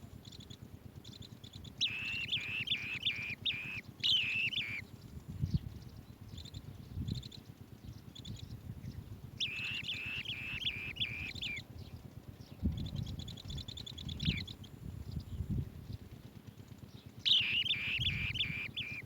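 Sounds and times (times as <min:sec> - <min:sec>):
bird trilling: 0:00.2 - 0:04.9, 0:06.2 - 0:12.0, 0:12.7 - 0:15.4, 0:17.1 - 0:19.0
bird chittering: 0:00.2 - 0:16.0, 0:16.8 - 0:19.0.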